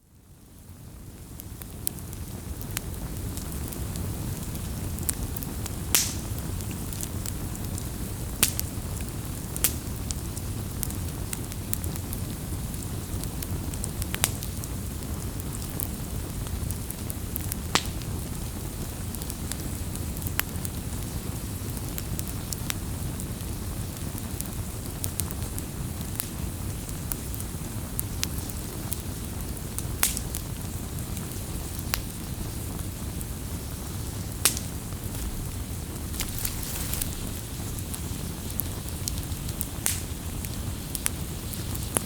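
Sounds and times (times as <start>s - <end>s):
campfire crackling: 0.2s - 42.0s.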